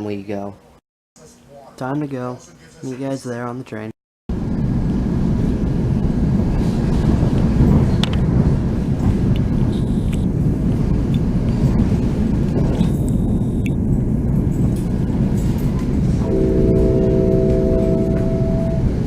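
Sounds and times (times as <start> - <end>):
moving train rumble: 4.3 - 19.0.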